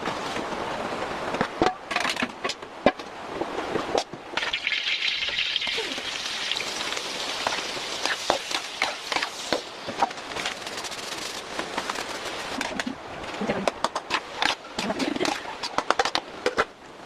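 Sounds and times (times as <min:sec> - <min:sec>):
food sizzling in hot oil: 0:04.4 - 0:10.1.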